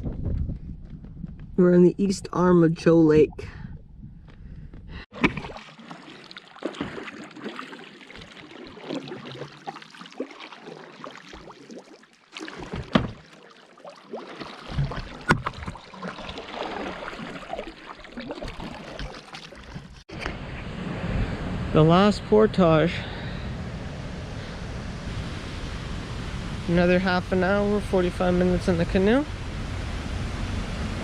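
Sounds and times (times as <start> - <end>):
paddle strokes splashing water: 5.1 - 20.6.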